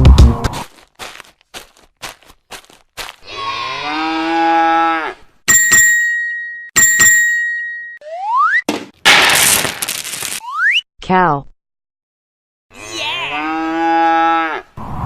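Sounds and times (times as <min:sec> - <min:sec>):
cow mooing: 0:03.3 - 0:05.2, 0:12.7 - 0:14.7
bright ringing dings: 0:05.5 - 0:08.0.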